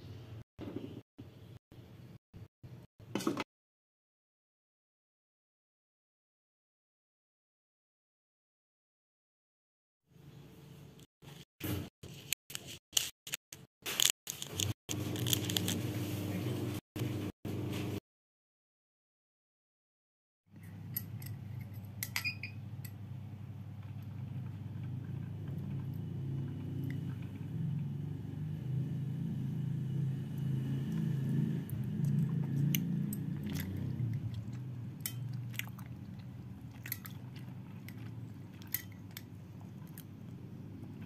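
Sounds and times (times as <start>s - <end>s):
chewing rice cakes: 30.7s - 41.0s.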